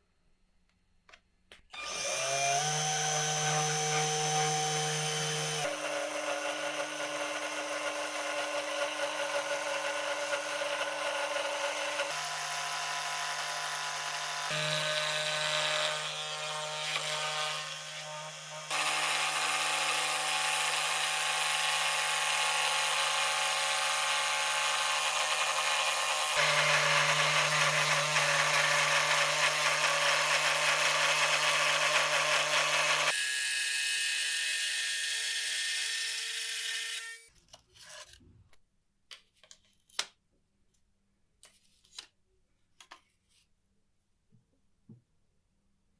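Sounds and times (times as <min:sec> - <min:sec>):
electric power tool motor humming: 0:01.8 - 0:37.3.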